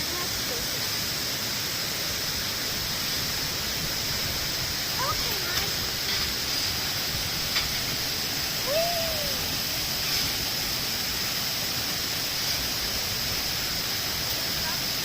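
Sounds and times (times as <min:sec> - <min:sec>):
steady rushing noise: 0:01.5 - 0:15.0
rising and falling call: 0:08.6 - 0:09.5.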